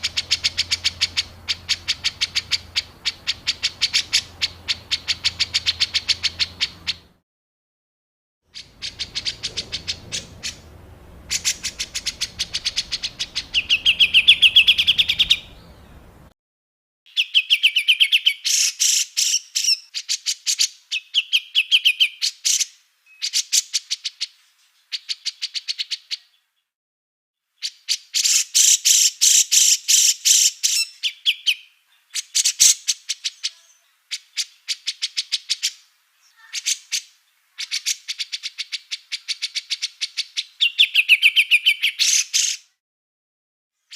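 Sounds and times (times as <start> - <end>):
songbird harsh chattering: 0.0 - 7.1, 8.6 - 16.1, 27.7 - 42.6
faint low hum: 8.7 - 16.3.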